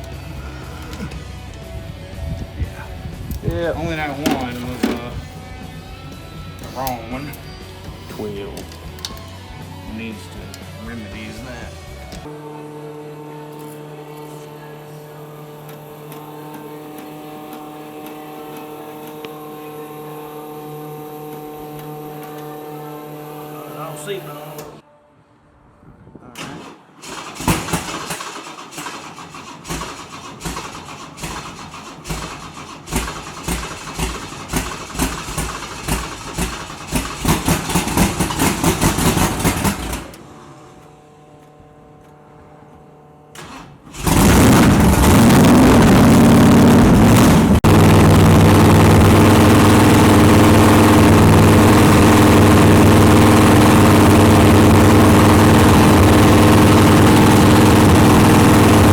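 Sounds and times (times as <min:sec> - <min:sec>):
engine running loud and steady: 0:00.0 - 0:24.4, 0:32.0 - 0:40.1, 0:43.9 - 0:58.9
engine cranking on starter: 0:03.3 - 0:05.3, 0:26.4 - 0:40.5, 0:43.3 - 0:58.9.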